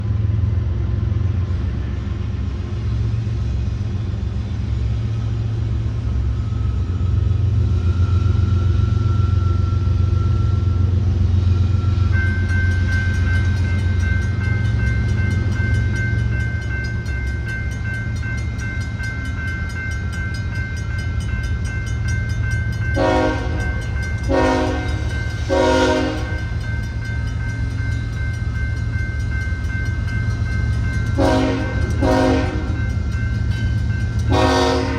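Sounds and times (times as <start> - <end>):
diesel locomotive rumbling: 0.0 - 34.9
crossing bell ringing: 6.5 - 34.9
locomotive horn blasts: 23.0 - 26.5, 31.2 - 32.8, 34.3 - 34.9.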